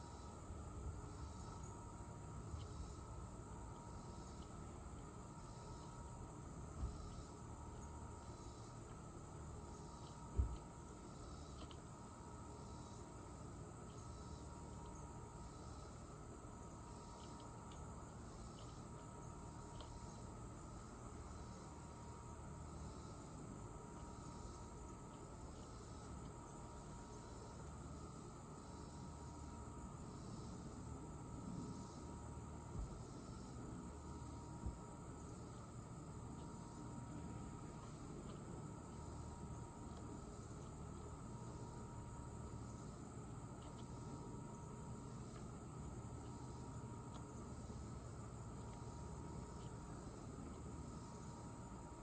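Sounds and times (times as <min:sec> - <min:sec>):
crickets chirring: 0:00.0 - 0:52.0
high-pitched insect chorus: 0:00.0 - 0:52.0.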